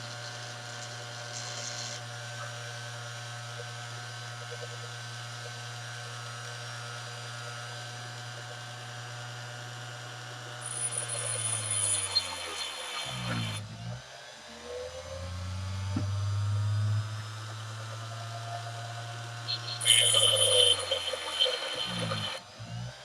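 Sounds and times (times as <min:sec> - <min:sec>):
grinder motor running: 0:10.4 - 0:13.6, 0:19.2 - 0:22.4
high whine of steel grinding: 0:10.6 - 0:13.6, 0:16.6 - 0:22.4.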